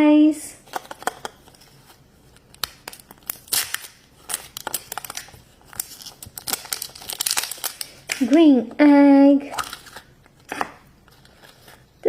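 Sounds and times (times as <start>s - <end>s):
wrapper crinkling and tearing: 0.7s - 8.4s, 9.5s - 11.9s.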